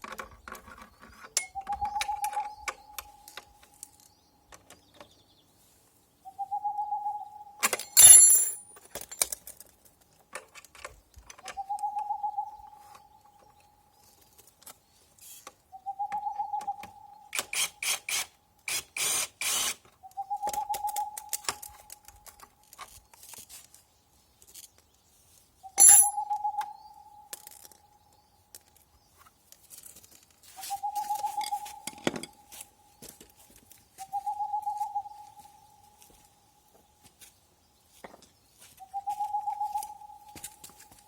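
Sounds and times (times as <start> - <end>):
metal tools clinking: 1.2 - 1.6, 7.6 - 9.7, 25.8 - 26.2
bird whistled call: 1.5 - 3.0, 6.3 - 7.6, 11.6 - 12.9, 15.7 - 17.3, 20.0 - 21.4, 25.6 - 27.3, 30.6 - 32.0, 34.0 - 35.6, 38.8 - 40.6.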